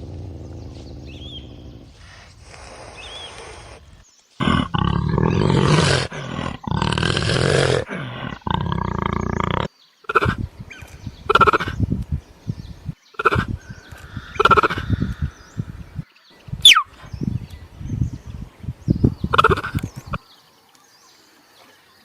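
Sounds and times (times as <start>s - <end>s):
large animal roaring: 4.4s - 10.5s, 13.2s - 16.0s
animal short high calls: 16.6s - 16.9s.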